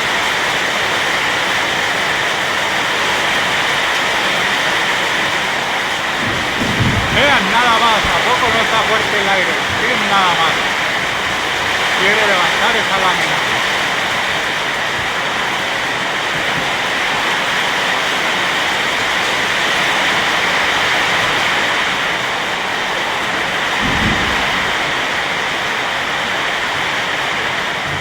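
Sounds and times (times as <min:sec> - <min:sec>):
heavy rain pouring: 0:00.0 - 0:28.0
strong wind: 0:00.0 - 0:28.0
short low thump: 0:23.8 - 0:25.2.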